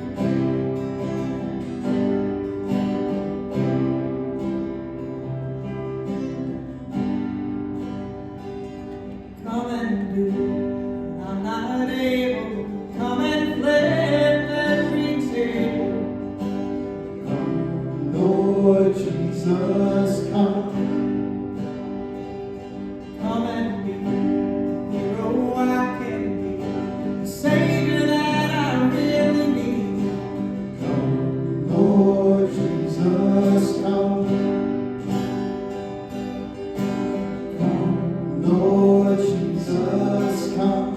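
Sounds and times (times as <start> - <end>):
strummed acoustic guitar: 0.0 - 40.9
person singing: 37.6 - 40.9.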